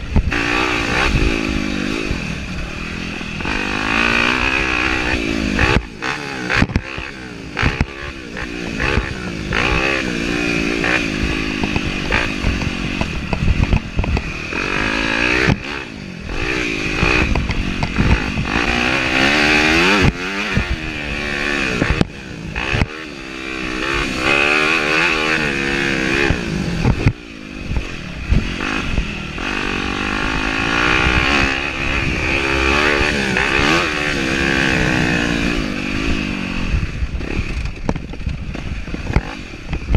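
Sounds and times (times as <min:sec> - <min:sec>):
dirt bike engine revving: 0:00.0 - 0:39.9
bike knocks and clatter: 0:11.6 - 0:14.7, 0:37.2 - 0:39.9.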